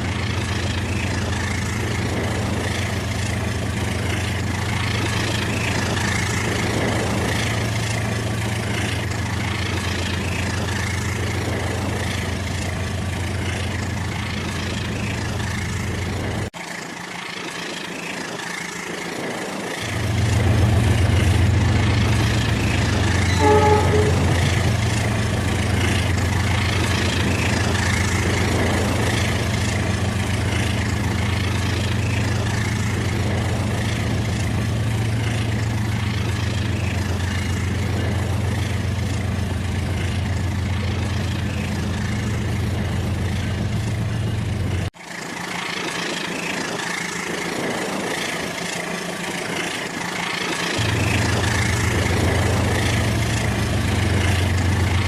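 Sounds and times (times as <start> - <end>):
short high-pitched notes: 23.2 - 24.8.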